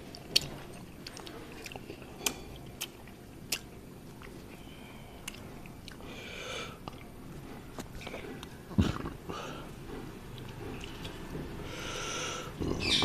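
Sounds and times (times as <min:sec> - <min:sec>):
mouth clicks and smacks: 0:00.0 - 0:06.1
person chewing food: 0:00.0 - 0:13.0.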